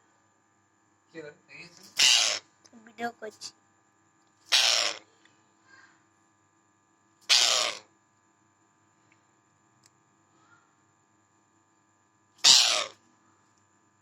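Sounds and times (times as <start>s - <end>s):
parrot harsh calls: 1.9s - 2.5s, 4.5s - 5.0s, 7.2s - 7.9s, 12.4s - 13.0s.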